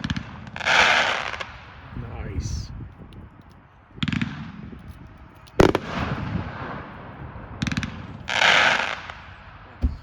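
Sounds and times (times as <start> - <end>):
crackling firework pops: 5.5 - 6.4
loud firework shot with echo: 5.6 - 6.9.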